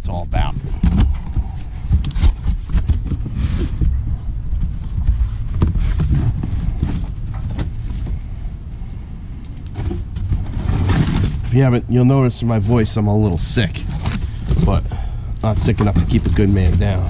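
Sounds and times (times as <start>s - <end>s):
box knocks and scrapes: 0.7s - 8.2s, 9.8s - 11.5s, 13.8s - 17.0s.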